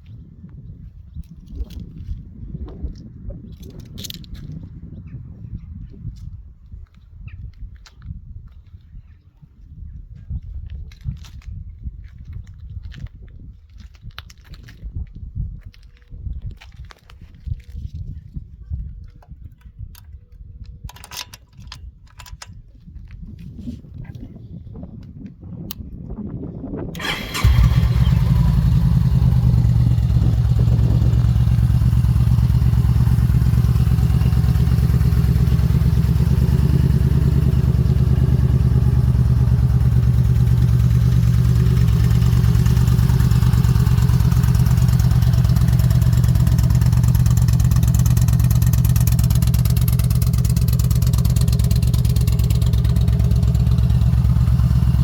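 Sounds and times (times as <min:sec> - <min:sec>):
motorcycle engine idling: 0:27.0 - 0:55.0
motorcycle starter cranking: 0:27.0 - 0:55.0.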